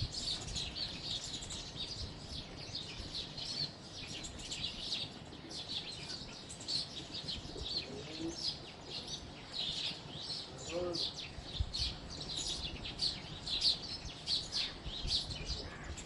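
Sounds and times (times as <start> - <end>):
sparrows chirping: 0.0 - 16.0.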